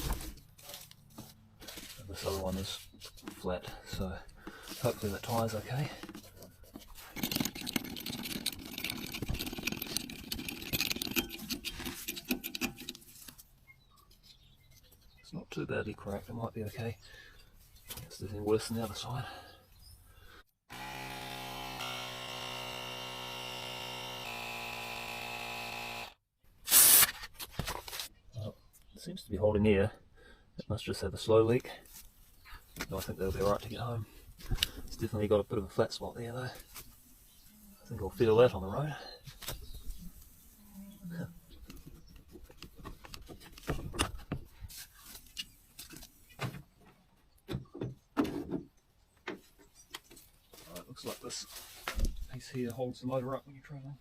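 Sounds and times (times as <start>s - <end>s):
knocks and clicks handling gear: 5.9s - 13.4s, 41.6s - 44.6s
air compressor buzzing: 20.7s - 27.0s.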